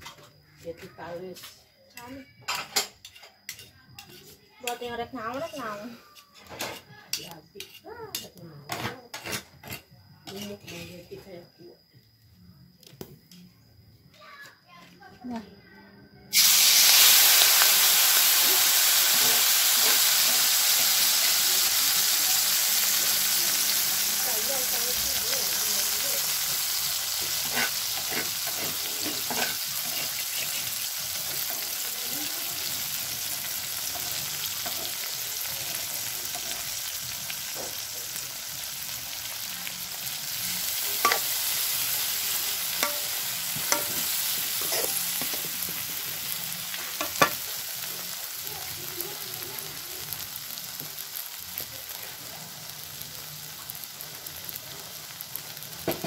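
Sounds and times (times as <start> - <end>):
grasshoppers sizzling in oil: 0.0 - 11.9, 16.3 - 56.0
metal spatula scraping a wok: 2.6 - 11.0, 26.3 - 31.8, 40.6 - 47.8.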